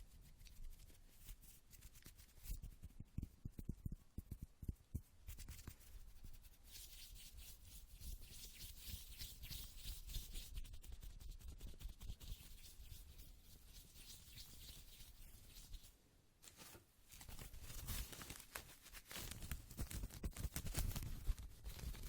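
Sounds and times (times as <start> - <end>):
hands rubbing and rustling: 0.0 - 22.0.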